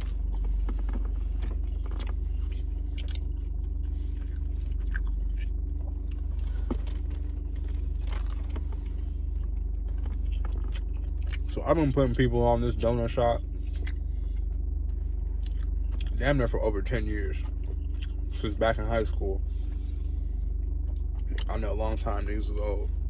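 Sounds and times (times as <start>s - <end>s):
person chewing: 0.0s - 11.5s, 13.4s - 16.2s, 17.4s - 18.4s
low rumble: 0.0s - 23.0s.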